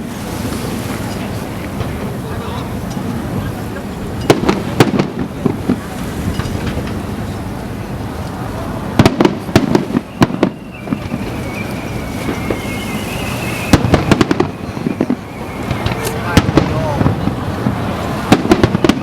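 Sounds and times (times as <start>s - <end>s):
fireworks bangs: 0.0s - 8.1s, 8.7s - 19.0s
low rumble of fireworks bursts: 0.0s - 19.0s
high falling whistle: 9.9s - 17.0s.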